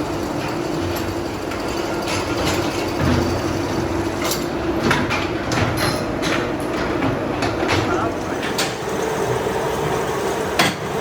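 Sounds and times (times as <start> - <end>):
factory machinery hum: 0.0 - 11.0.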